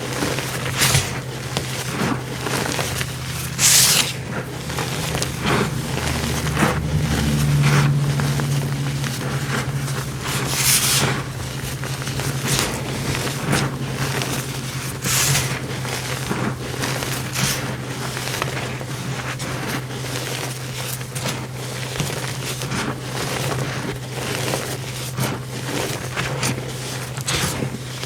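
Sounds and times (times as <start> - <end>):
steady low hum: 0.0 - 26.9
compressed powder crunching: 0.0 - 28.0.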